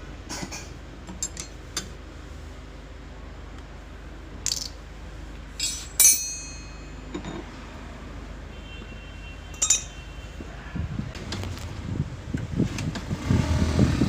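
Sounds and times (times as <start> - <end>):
metal tools clinking: 1.1 - 1.6, 4.5 - 4.8, 5.6 - 7.5, 9.6 - 10.0.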